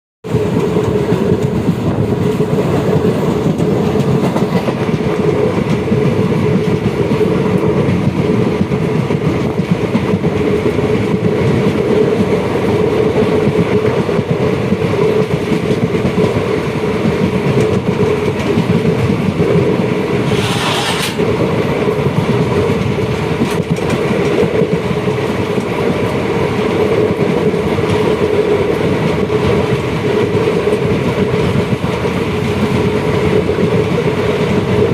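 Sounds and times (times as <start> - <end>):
train rumbling on rails: 0.2 - 34.9
high hiss or screech: 20.3 - 21.2.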